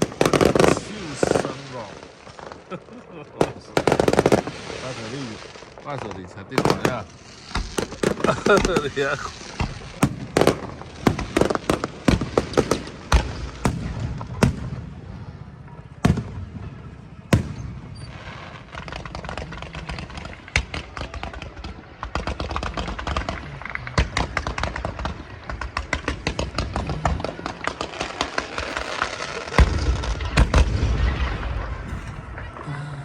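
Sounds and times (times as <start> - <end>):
rapid crackling pops: 0.0 - 14.0
fireworks shells bursting: 6.6 - 13.7, 24.2 - 32.7.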